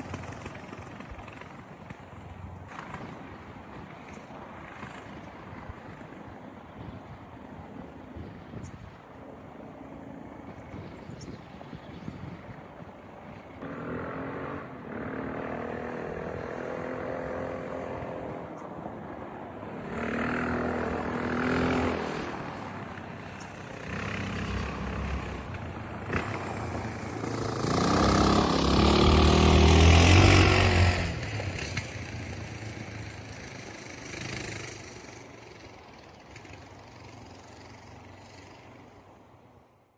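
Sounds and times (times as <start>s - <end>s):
motorcycle engine revving: 13.6s - 18.6s, 19.6s - 38.8s.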